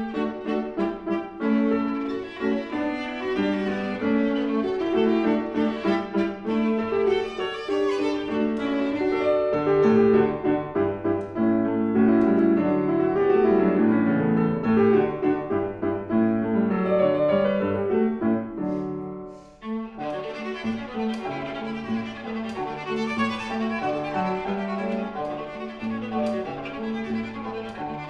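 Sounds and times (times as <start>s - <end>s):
viola playing: 0.0s - 10.0s, 19.4s - 28.0s
piano playing: 0.0s - 28.0s.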